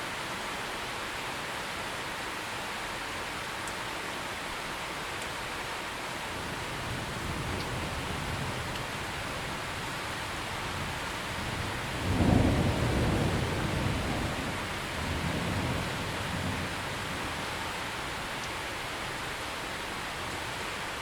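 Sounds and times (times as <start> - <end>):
steady rain: 0.0 - 21.0
thunder rumble: 10.7 - 17.5.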